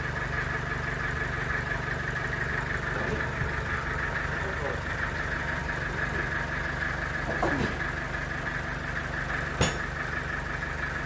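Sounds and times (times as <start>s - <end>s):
sawmill machinery humming: 0.0s - 11.0s.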